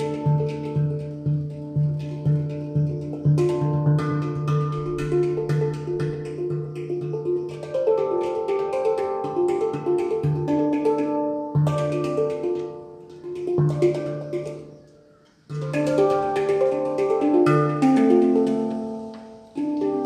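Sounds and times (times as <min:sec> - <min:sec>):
handpan bass note: 0:00.0 - 0:14.8
handpan melodic notes: 0:00.0 - 0:20.0.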